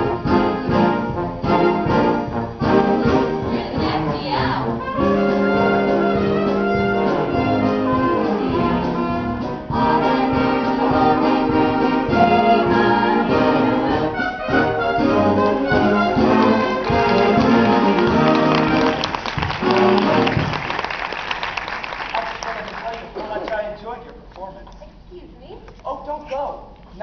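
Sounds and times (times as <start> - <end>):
trumpets and trombones: 0.0 - 20.8
orchestra playing brassy dance music: 0.0 - 22.5.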